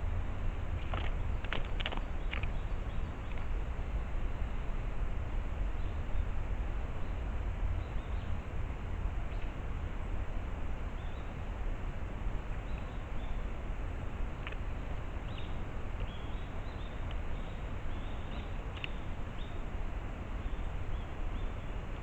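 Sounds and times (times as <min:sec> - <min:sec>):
faint high bird chirps: 0:15.2 - 0:19.6.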